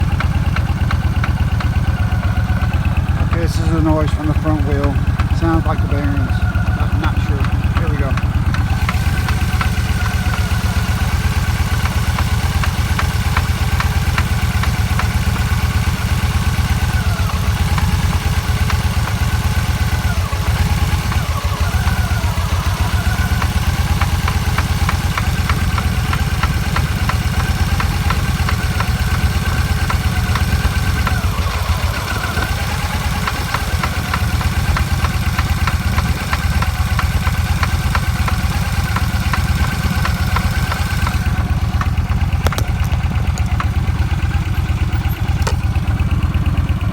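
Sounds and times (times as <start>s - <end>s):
wavering high wheel whine: 0.0s - 24.5s
vehicle low drone: 0.0s - 24.6s, 25.3s - 46.9s.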